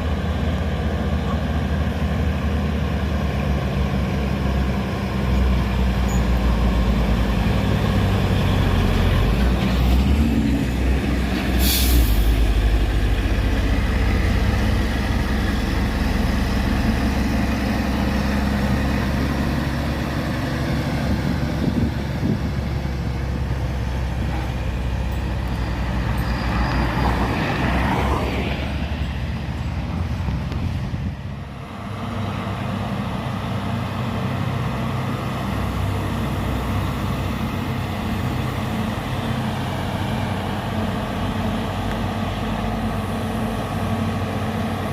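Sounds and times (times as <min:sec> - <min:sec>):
diesel truck engine running: 0:00.0 - 0:27.8, 0:28.4 - 0:44.9
air hiss: 0:11.5 - 0:12.5.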